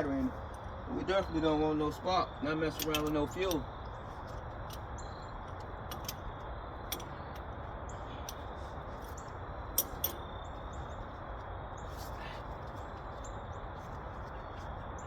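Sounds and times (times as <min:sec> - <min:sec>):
small birds chirping: 0:00.0 - 0:15.0
tools clicking on metal: 0:02.7 - 0:03.7, 0:05.9 - 0:07.5, 0:09.8 - 0:10.2.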